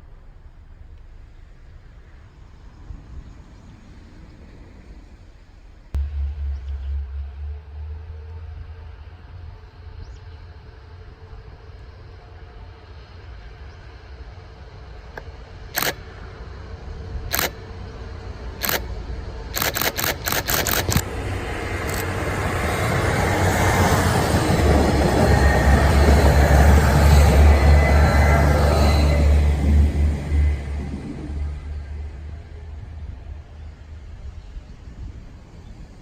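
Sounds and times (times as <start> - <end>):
diesel train approaching: 0.0 - 36.0
camera shutter clicks: 15.8 - 16.0, 17.3 - 17.6, 18.6 - 18.9, 19.6 - 21.1, 21.8 - 22.1.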